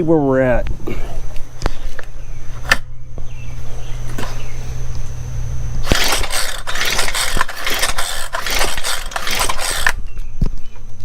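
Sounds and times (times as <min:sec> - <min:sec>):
engine pull-starter cranking: 0:05.8 - 0:10.0
rapid rattling knocks: 0:05.9 - 0:10.0.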